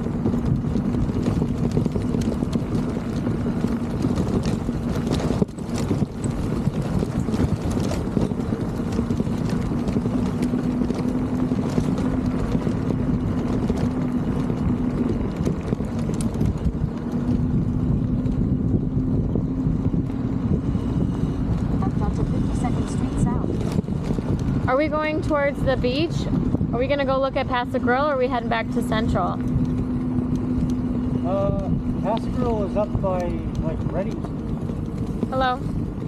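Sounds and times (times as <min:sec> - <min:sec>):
clicks and rattles over pavement: 0:00.0 - 0:36.0
electric scooter motor hum: 0:00.0 - 0:36.0
wind rumble on microphone: 0:00.0 - 0:36.0.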